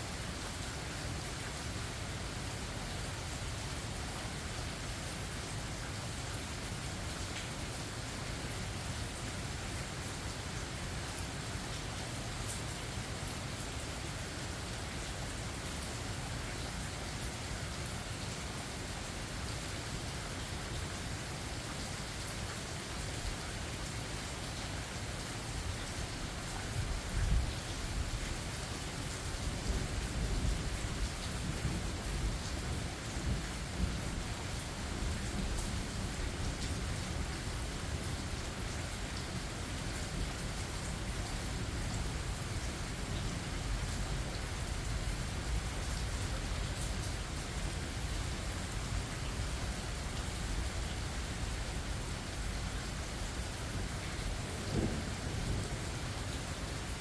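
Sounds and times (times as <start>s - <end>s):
rain falling: 0.0s - 57.0s
thunder rumbling: 54.4s - 55.7s.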